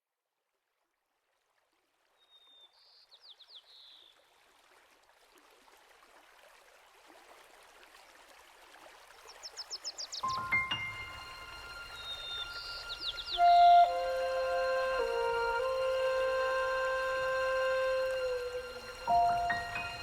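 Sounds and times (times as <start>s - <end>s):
running water rushing: 3.9s - 20.0s
songbird singing: 9.3s - 20.0s.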